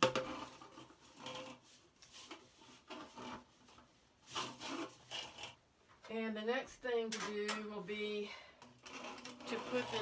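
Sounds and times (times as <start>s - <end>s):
aluminum duct crinkling and scraping: 0.0s - 5.6s, 8.6s - 10.0s.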